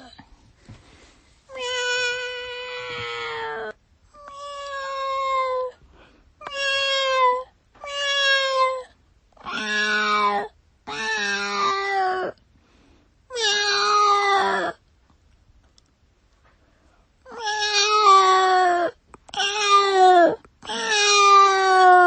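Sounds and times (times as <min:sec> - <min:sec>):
cat meowing: 0:01.5 - 0:05.7, 0:06.4 - 0:12.4, 0:13.3 - 0:14.8, 0:17.3 - 0:22.0.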